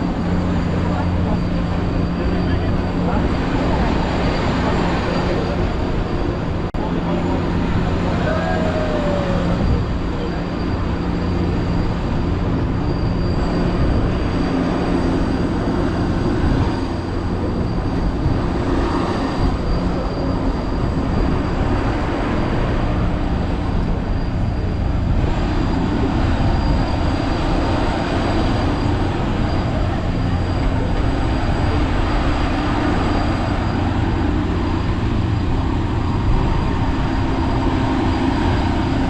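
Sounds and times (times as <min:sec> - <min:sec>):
tram engine hum and rolling: 0:00.0 - 0:39.0.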